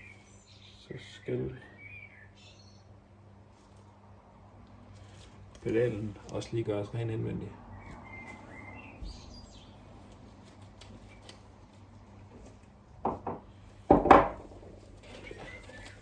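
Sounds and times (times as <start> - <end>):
faint birdsong: 0.0 - 4.0, 4.9 - 12.3, 14.8 - 16.0
tools knocking on workbench: 13.0 - 14.5.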